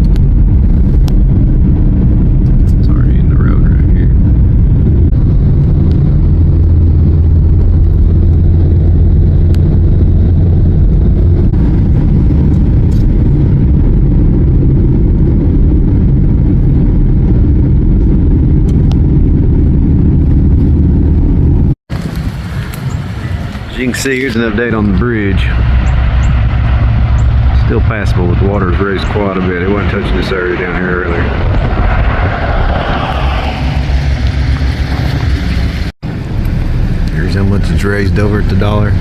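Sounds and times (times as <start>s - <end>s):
car cabin engine and road drone: 0.0s - 39.0s.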